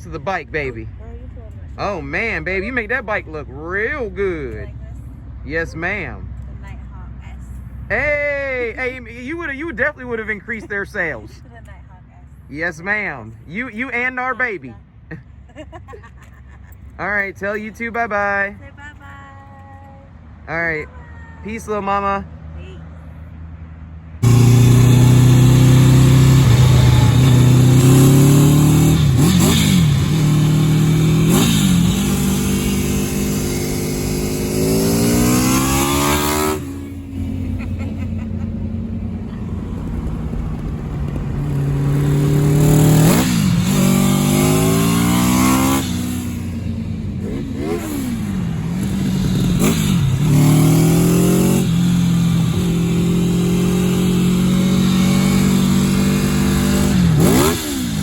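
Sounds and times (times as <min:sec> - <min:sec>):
motorcycle engine revving: 0:24.2 - 0:58.0.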